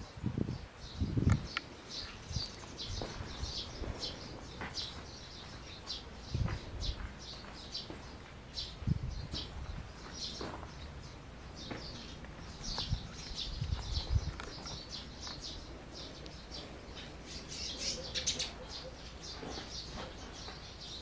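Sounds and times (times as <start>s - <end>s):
small birds chirping: 0.0s - 21.0s
dull low thumps: 6.2s - 8.1s.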